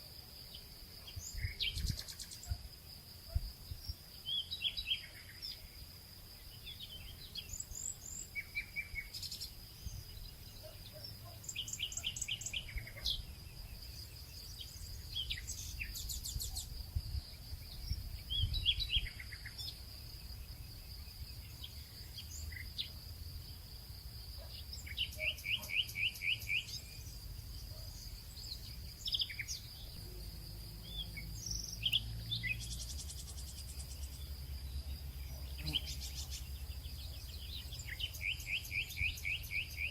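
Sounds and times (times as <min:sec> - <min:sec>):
high insect drone: 0:00.0 - 0:39.9
birds chirping and singing: 0:06.6 - 0:16.8, 0:24.4 - 0:39.9.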